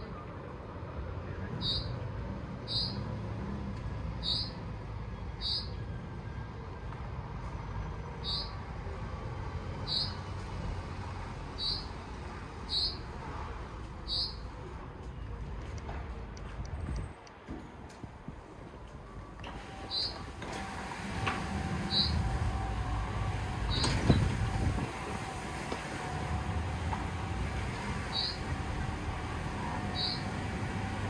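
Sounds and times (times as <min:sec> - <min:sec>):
bird chirping: 0:01.6 - 0:02.0, 0:02.6 - 0:03.0, 0:04.2 - 0:04.6, 0:05.3 - 0:05.8, 0:08.2 - 0:08.6, 0:09.9 - 0:10.2, 0:11.6 - 0:11.9, 0:12.7 - 0:13.0, 0:14.1 - 0:14.4, 0:19.9 - 0:20.2, 0:28.1 - 0:28.4, 0:29.9 - 0:30.3.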